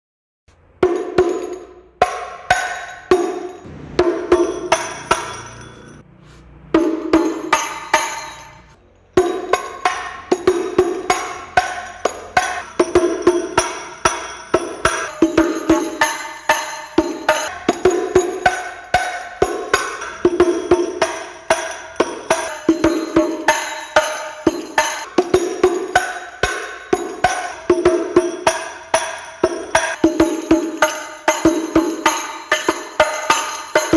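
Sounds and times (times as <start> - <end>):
frame drums struck by hand: 9.3 - 33.9.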